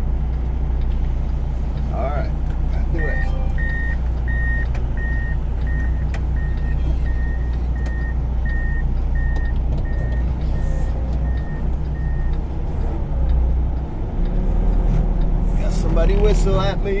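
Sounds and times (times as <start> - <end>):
diesel truck engine rumble: 0.0 - 17.0
backup alarm beeping: 3.0 - 12.3.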